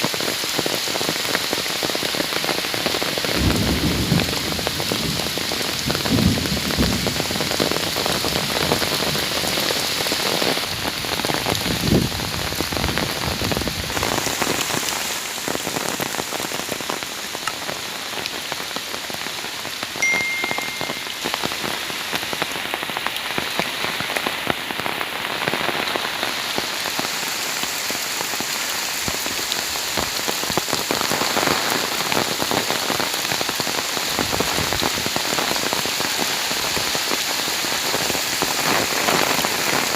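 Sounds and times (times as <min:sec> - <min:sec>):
heavy rain falling: 0:00.0 - 0:39.9
faint high tone: 0:20.0 - 0:21.3.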